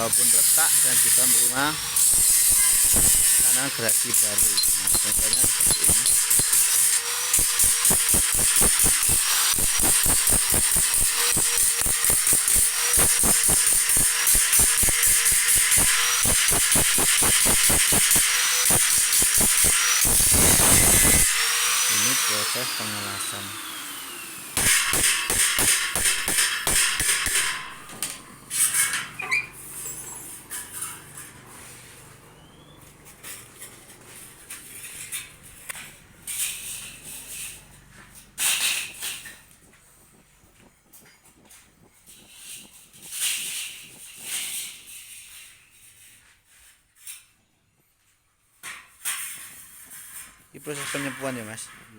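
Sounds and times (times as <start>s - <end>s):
crackling hiss of welding: 0.0s - 28.9s, 38.4s - 47.2s, 49.0s - 51.9s
short high squeak: 2.4s - 3.2s, 28.4s - 31.1s
hammer striking steel blade: 4.4s - 6.6s, 24.6s - 28.0s.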